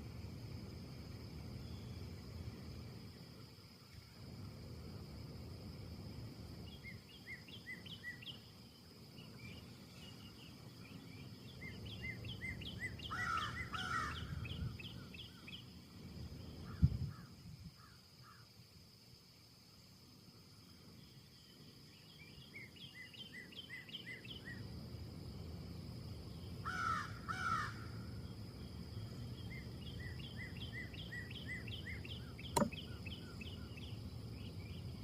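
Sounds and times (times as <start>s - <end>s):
wind in trees: 0.0s - 35.0s
small birds chirping: 9.1s - 15.7s, 28.7s - 35.0s
harsh bird calls: 11.5s - 15.5s.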